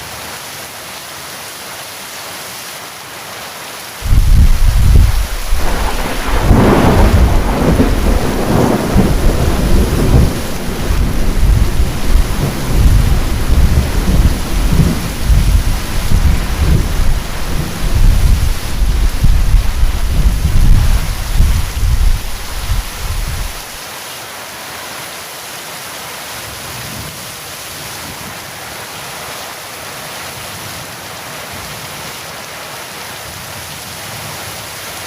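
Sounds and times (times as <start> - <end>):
heavy rain falling: 0.0 - 35.0
thunder crash and rumble: 4.0 - 23.8.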